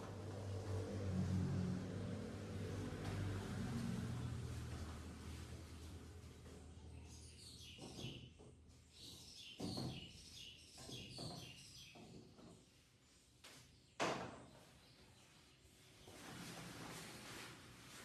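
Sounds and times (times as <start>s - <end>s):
small birds chirping: 6.9s - 16.2s.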